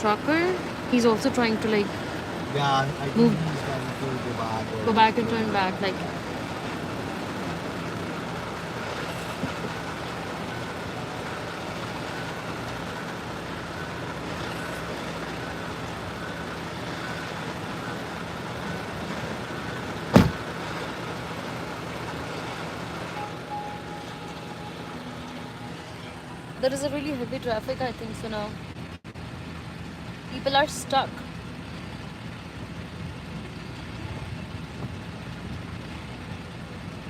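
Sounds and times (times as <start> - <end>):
idling vehicle engines: 0.0 - 37.0
sharp knock: 20.1 - 20.4.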